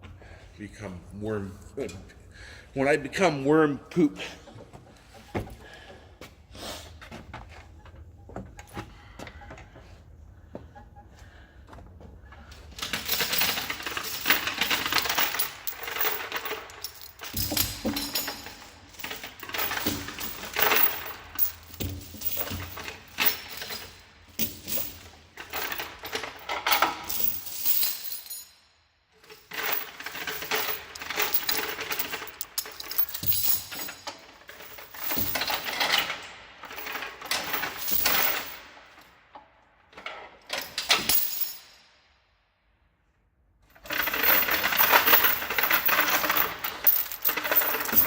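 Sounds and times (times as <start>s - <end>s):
metal chains rattling: 12.7s - 38.8s, 40.5s - 41.9s, 43.8s - 48.0s.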